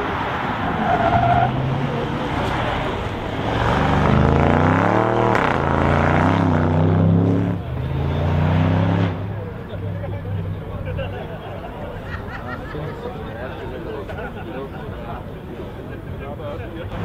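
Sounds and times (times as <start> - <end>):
car engine passing by: 0.0 - 11.4.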